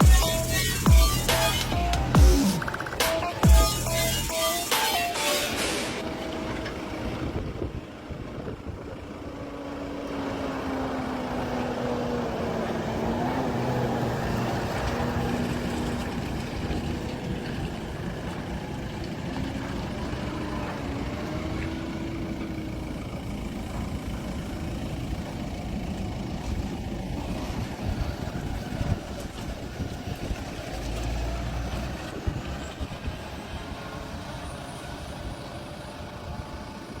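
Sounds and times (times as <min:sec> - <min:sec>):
tractor engine running: 0:00.0 - 0:37.0.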